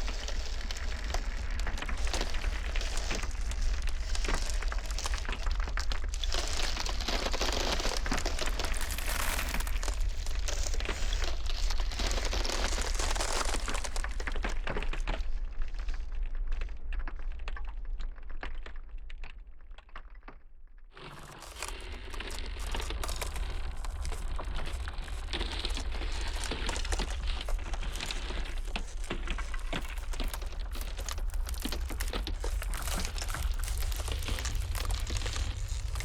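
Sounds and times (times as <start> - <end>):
ice cracking: 0.0 - 14.9, 21.0 - 36.0
low wind rumble: 22.5 - 36.0.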